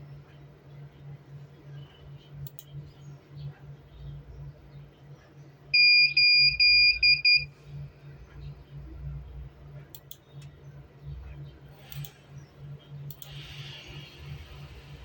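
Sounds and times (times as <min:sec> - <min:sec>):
low electrical hum: 0:00.0 - 0:15.0
electronic buzzer beeping: 0:05.8 - 0:07.5.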